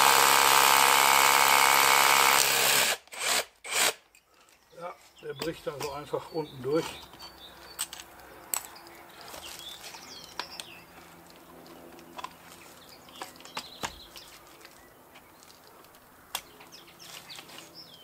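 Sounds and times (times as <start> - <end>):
small birds chirping: 4.1 - 18.0.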